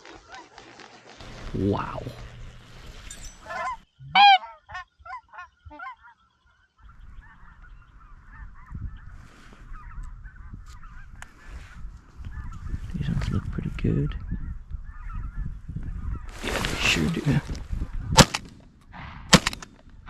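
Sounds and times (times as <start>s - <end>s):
geese honking: 3.4s - 8.8s
chatter of distant geese: 3.4s - 17.5s.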